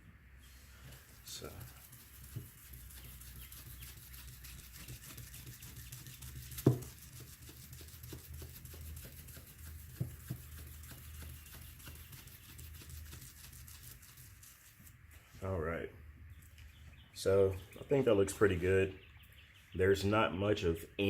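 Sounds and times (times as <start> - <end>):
hand rubbing on plastic: 0.5 - 15.5.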